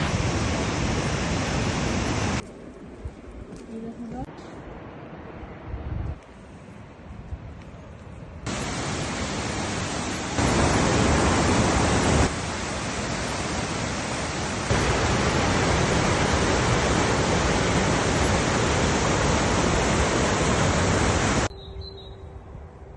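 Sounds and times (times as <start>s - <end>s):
steady rushing noise: 0.0s - 3.5s, 8.3s - 21.5s.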